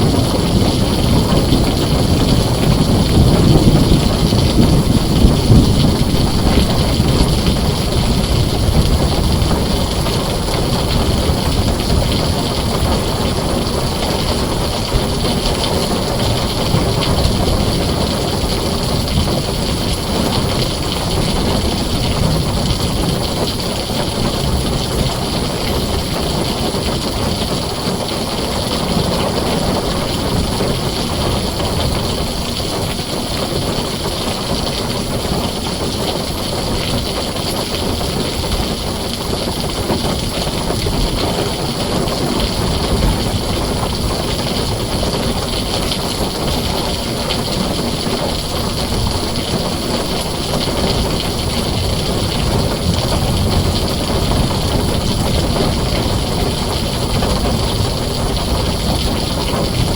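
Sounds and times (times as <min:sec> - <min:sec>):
deep low rumble: 0:00.0 - 0:14.0
heavy rain on a tin roof: 0:00.0 - 0:59.9.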